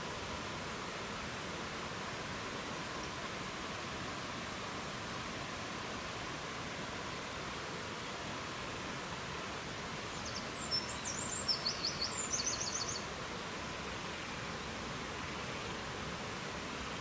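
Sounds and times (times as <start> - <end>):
small songbird singing: 10.1 - 13.1.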